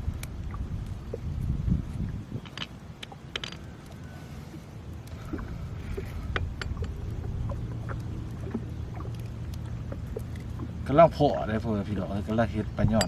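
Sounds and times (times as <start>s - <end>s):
steady low rumble: 0.0s - 13.0s
water dripping: 0.0s - 13.0s
small splashes: 2.7s - 13.0s.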